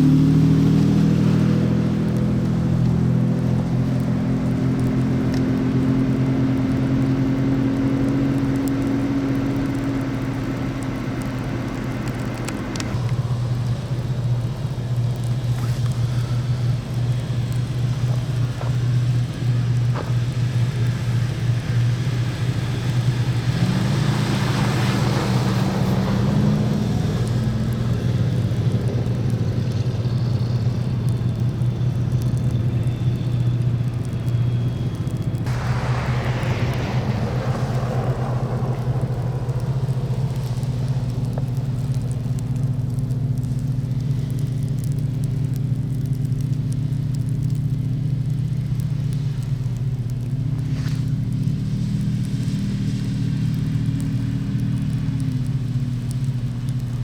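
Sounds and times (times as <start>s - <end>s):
car engine hum: 0.0s - 57.0s
road noise: 0.0s - 57.0s
second engine tone: 26.1s - 42.1s.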